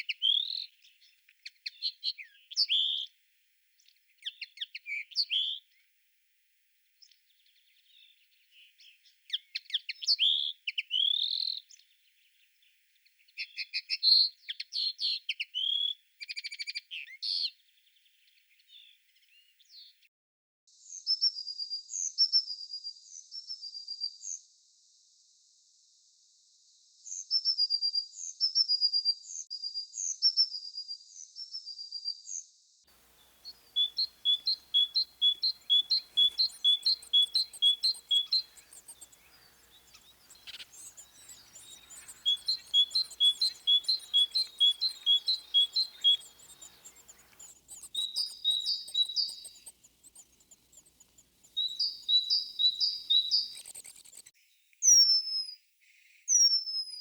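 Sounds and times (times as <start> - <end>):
songbirds chirping: 32.9 - 54.3
bird falling whistles: 33.4 - 49.6.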